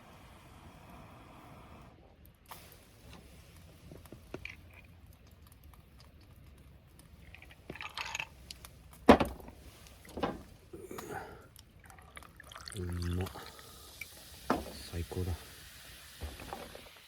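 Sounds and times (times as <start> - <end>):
person chewing food: 4.3 - 7.9, 10.8 - 12.7.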